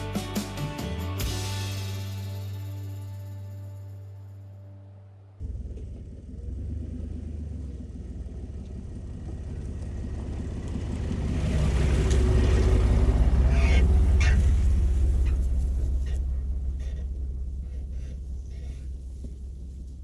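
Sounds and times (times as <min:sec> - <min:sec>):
music: 0:00.0 - 0:05.4
truck engine and road noise: 0:00.0 - 0:20.0.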